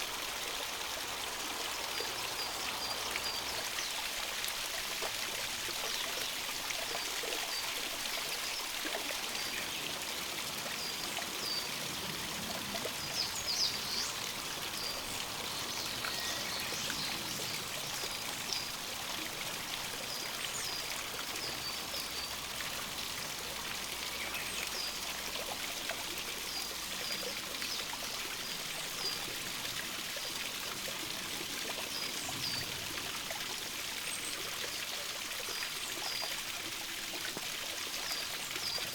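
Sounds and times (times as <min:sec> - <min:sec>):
small stream running: 0:00.0 - 0:38.9.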